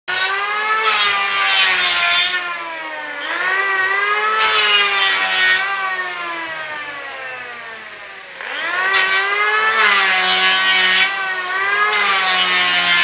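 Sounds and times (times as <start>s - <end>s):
electric tool motor whining: 0.1s - 13.0s
wood shaving hiss: 3.2s - 13.0s.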